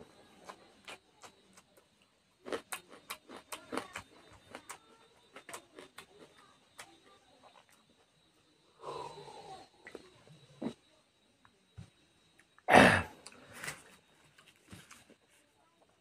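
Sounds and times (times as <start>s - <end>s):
wet chewing and lip smacks: 0.4s - 7.8s.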